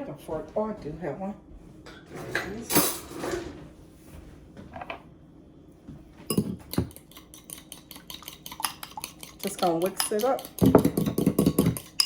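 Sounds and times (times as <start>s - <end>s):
kitchen utensils clattering: 2.0s - 3.6s
fork clicking against a bowl: 6.9s - 12.0s.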